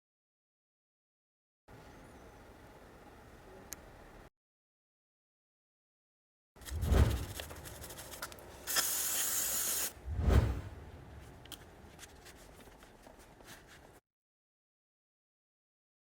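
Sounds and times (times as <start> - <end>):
aerosol spray hissing: 8.6 - 10.0
low falling whooshes: 10.0 - 11.2.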